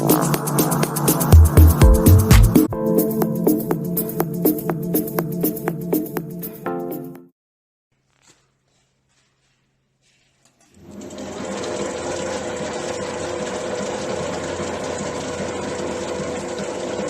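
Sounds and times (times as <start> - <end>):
packing machine humming: 10.7 - 17.0.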